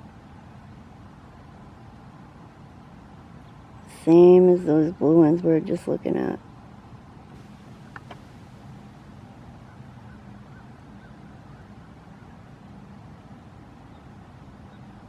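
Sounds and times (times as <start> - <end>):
vehicle motor humming: 7.3 - 9.7
faint bird calls: 9.5 - 12.4.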